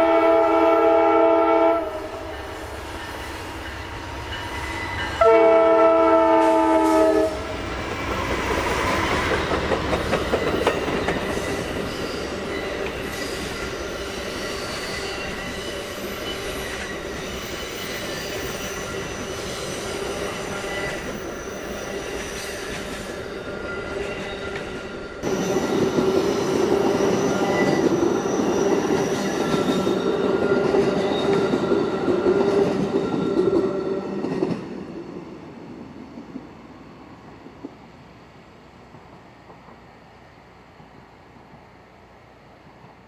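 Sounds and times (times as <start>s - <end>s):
locomotive air horn blast: 0.0s - 2.0s, 5.2s - 7.4s
rolling train cars rumbling: 0.0s - 37.9s
train wheels clicking on rails: 6.3s - 37.9s.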